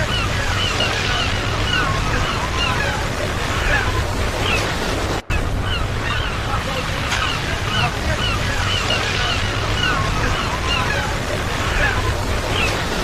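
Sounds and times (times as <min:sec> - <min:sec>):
ocean surf washing: 0:00.0 - 0:13.0
short hooked bird calls: 0:05.3 - 0:12.8.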